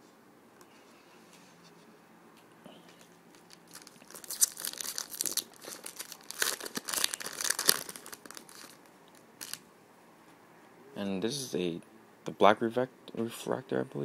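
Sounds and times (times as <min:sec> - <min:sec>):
foil wrapper tearing and crinkling: 0:03.3 - 0:09.6.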